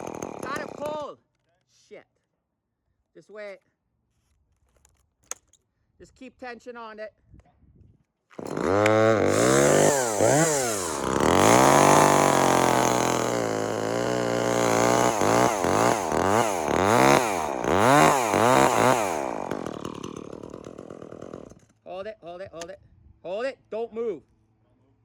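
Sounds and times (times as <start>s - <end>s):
chainsaw cutting wood: 0.0s - 1.1s, 8.3s - 21.8s.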